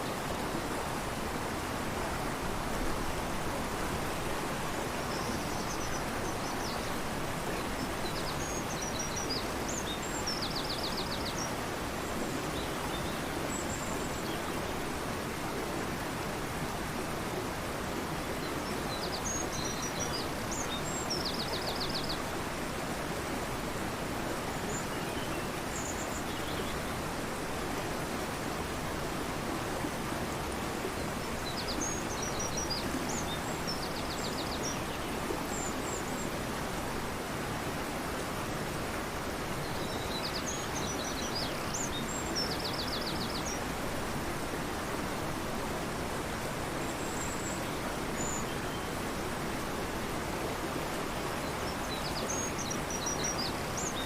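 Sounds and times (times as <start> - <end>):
river rushing: 0.0 - 54.0.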